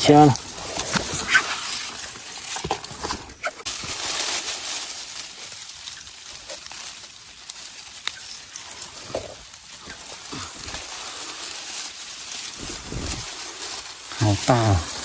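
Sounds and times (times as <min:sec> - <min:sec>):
rustling and handling noise: 0:00.0 - 0:15.0.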